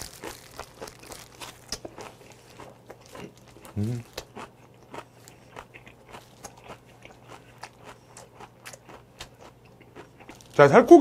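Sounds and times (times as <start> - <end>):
person chewing crisp crunches: 0.0 - 11.0.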